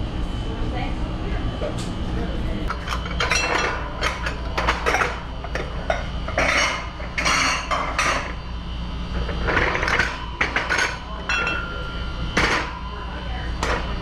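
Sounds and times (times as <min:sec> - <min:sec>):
steady low hum: 0:00.0 - 0:14.0
plates and silverware clattering: 0:02.7 - 0:08.4, 0:09.3 - 0:12.8.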